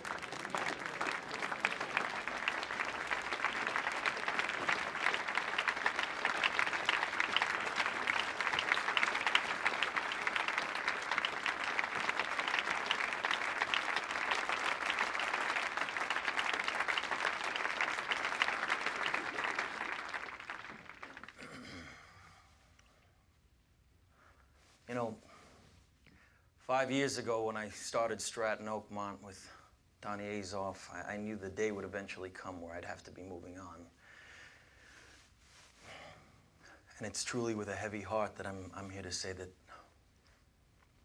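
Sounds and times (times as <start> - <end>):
large crowd applauding: 0.0 - 21.6.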